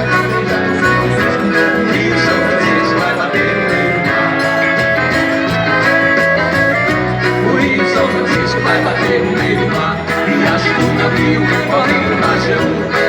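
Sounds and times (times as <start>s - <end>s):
accordion tune: 0.0s - 13.0s
bass line: 0.0s - 13.0s
percussion ticking: 0.0s - 13.0s.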